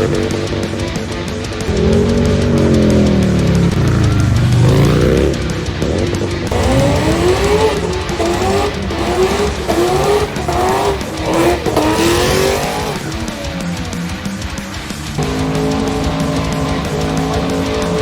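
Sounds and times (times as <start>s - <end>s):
car engine revving: 0.0s - 18.0s
music: 0.0s - 18.0s
tyres squealing: 6.5s - 18.0s.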